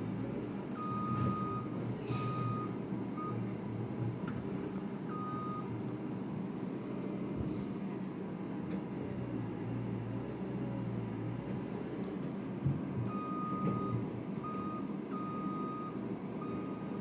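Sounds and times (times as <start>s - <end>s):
diesel engine running: 0.0s - 17.0s
reversing alarm beeps: 0.8s - 3.4s, 5.1s - 5.7s, 13.1s - 17.0s.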